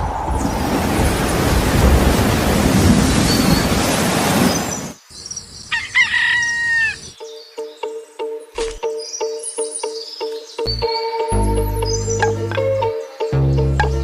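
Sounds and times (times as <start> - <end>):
rooster crowing: 5.7 - 7.1
music with repeating notes: 7.2 - 14.0.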